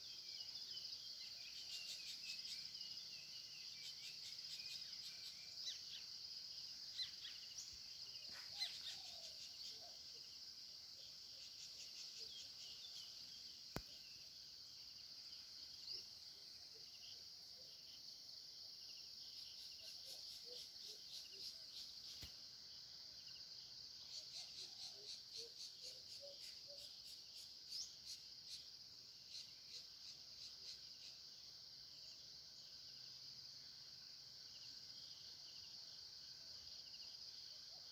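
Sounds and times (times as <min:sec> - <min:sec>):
faint bird chirps: 0:00.0 - 0:18.0, 0:19.2 - 0:22.5, 0:23.2 - 0:31.2
high-pitched insect chorus: 0:00.0 - 0:37.9.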